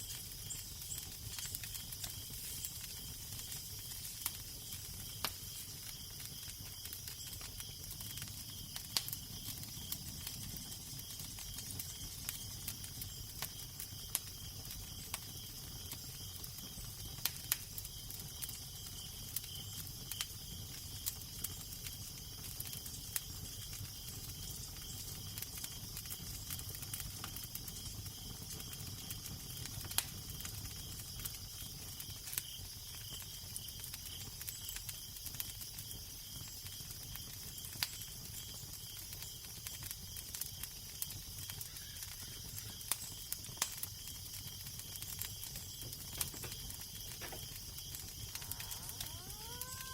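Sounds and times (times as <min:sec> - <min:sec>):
steady hiss: 0:00.0 - 0:06.2
wood fire crackling and popping: 0:00.0 - 0:49.9.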